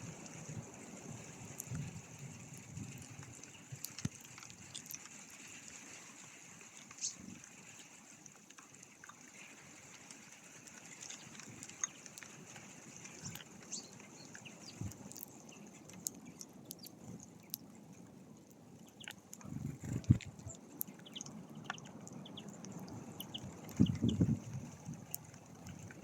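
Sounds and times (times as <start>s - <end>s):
bird chirps: 13.2s - 17.6s, 19.8s - 24.4s.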